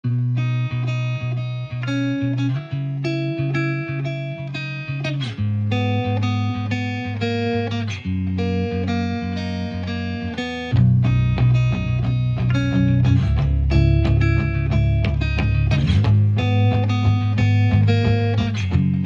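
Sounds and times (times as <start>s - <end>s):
plucked guitar: 0.0s - 19.0s
steady bass line: 5.3s - 19.0s.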